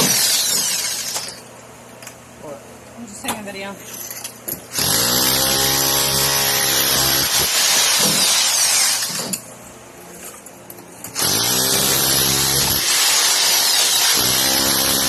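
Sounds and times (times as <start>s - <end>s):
rotary hammer chiselling concrete: 4.8s - 9.4s, 11.2s - 15.0s.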